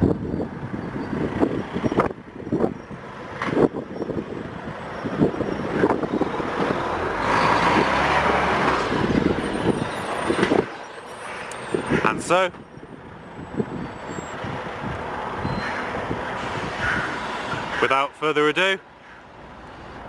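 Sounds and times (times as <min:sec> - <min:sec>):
road traffic: 0:00.0 - 0:20.0
vehicle passing: 0:04.3 - 0:12.3.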